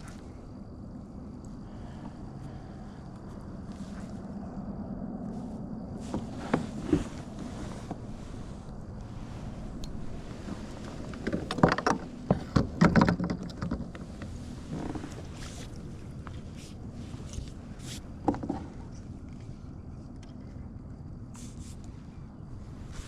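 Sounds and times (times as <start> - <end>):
knocks and clatter aboard kayak: 9.9 - 16.5, 18.2 - 19.0.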